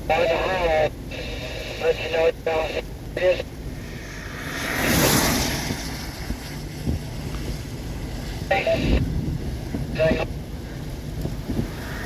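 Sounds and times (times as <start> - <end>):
low steady rumble: 0.0 - 12.0
strong wind gust: 3.2 - 12.0.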